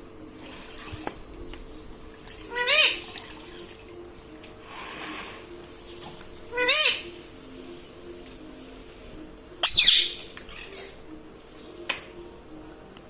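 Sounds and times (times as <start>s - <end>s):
parakeet calling: 2.4s - 3.2s, 6.4s - 7.3s, 9.6s - 11.0s.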